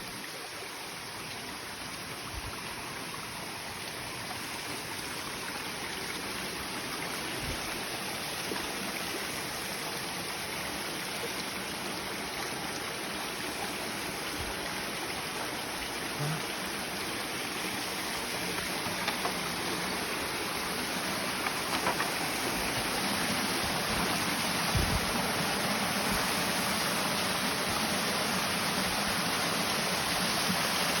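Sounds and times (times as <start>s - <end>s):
stream water rushing: 0.0s - 31.0s.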